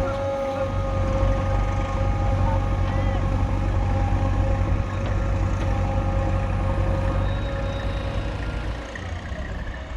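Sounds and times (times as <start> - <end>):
heavy diesel engine running: 0.0 - 9.9.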